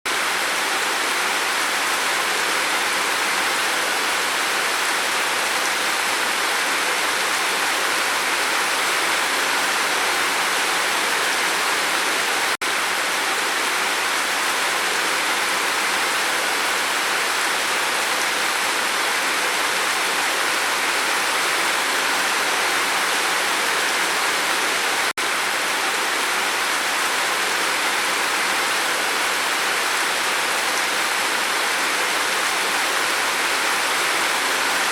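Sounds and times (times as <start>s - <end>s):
rain falling on a roof: 0.1s - 34.9s.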